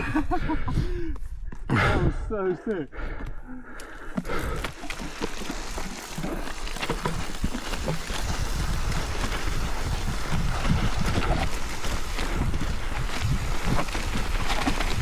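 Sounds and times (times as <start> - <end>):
wind buffeting microphone: 0.0 - 2.4, 4.2 - 15.0
tyres crackling over dirt: 3.7 - 15.0
bike rattling: 3.8 - 15.0.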